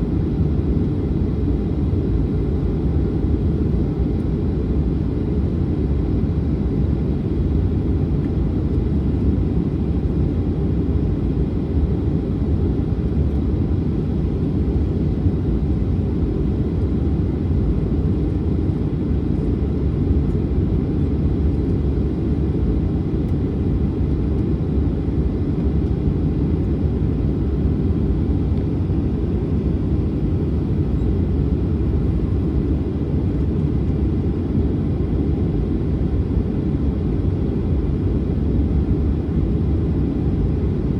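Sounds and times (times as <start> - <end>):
jet engines rumbling: 0.0 - 40.9.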